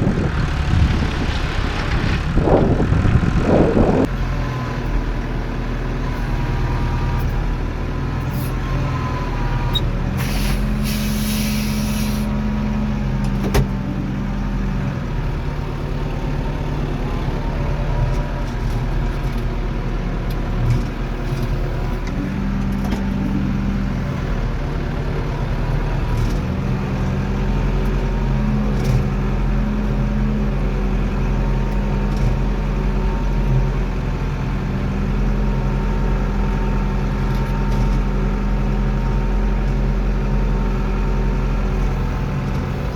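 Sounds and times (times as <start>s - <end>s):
tractor diesel engine: 0.0s - 42.9s
short hiss: 10.2s - 12.3s.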